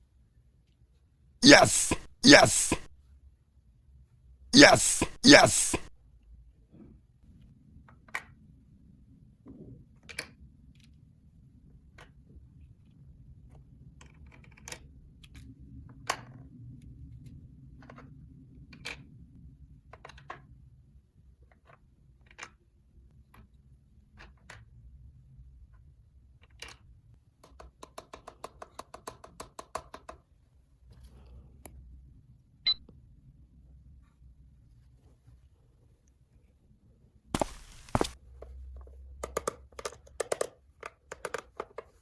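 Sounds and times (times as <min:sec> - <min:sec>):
plastic toy pieces clicking: 0:39.2 - 0:42.0.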